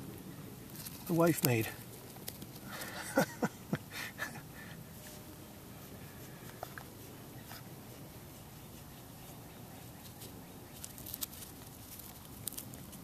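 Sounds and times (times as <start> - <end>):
steady low hiss: 0.0 - 13.0
small animal chewing: 6.4 - 13.0.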